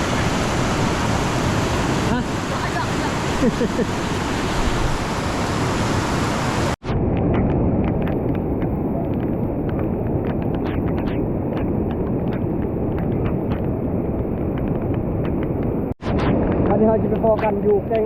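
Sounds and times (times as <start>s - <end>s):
fast-flowing river water rushing: 0.0s - 6.8s.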